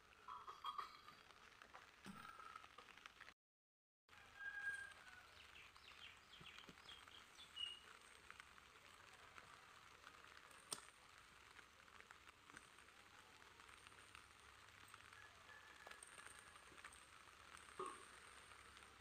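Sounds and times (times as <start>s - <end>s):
faint bird chirps: 4.4s - 7.9s
outdoor hiss: 5.1s - 19.0s.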